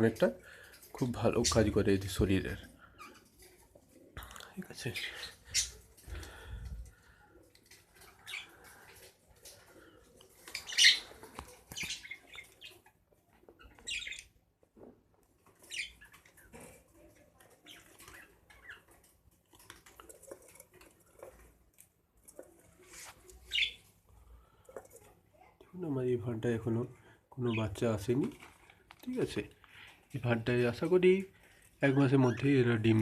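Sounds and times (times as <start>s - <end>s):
budgerigars chirping: 10.5s - 12.8s, 13.6s - 14.3s, 15.6s - 16.2s, 23.5s - 23.8s.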